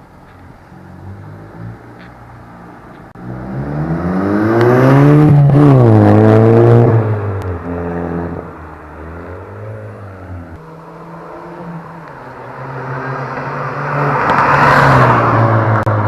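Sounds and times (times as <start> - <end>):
car accelerating hard: 3.2 - 16.0.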